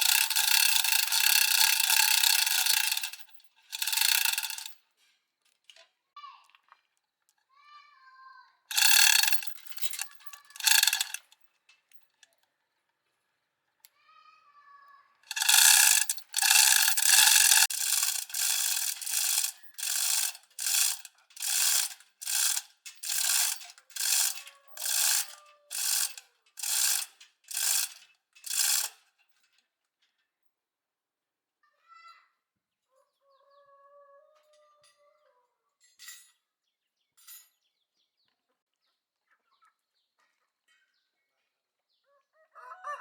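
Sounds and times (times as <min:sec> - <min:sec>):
hand tool rasping strokes: 0:00.0 - 0:04.7, 0:08.7 - 0:11.3, 0:15.3 - 0:28.9.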